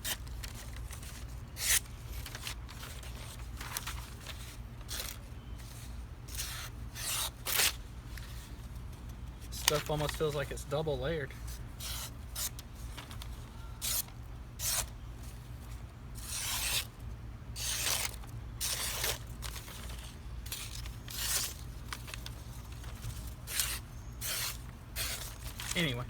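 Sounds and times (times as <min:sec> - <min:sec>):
low steady hum: 0:00.0 - 0:26.0
knife blade drawn across paper: 0:13.8 - 0:14.9, 0:16.2 - 0:16.9, 0:23.5 - 0:25.4.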